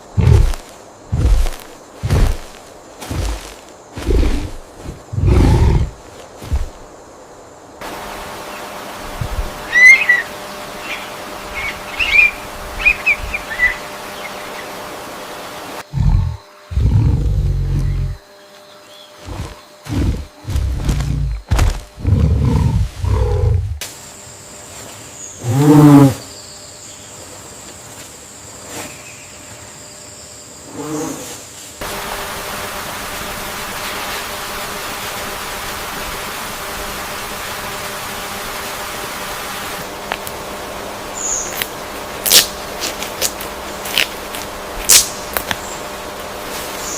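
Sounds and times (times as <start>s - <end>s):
steady rushing noise: 0.0s - 7.1s, 7.8s - 15.9s
insects droning: 0.0s - 46.9s
rainforest background hiss: 0.0s - 46.9s
bird whistling and chirping: 9.6s - 10.3s, 11.6s - 13.8s
loud animal call: 9.6s - 11.0s.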